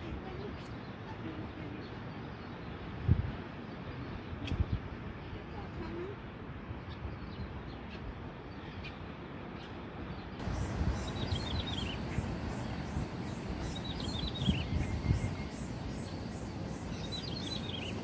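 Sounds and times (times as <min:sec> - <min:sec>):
songbird chirping: 0:06.8 - 0:18.0.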